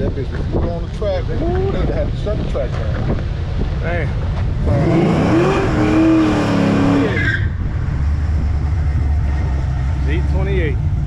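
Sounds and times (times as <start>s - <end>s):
tires squealing: 2.7s - 10.6s
car engine revving: 2.7s - 11.0s
engine idling hum: 7.6s - 11.0s.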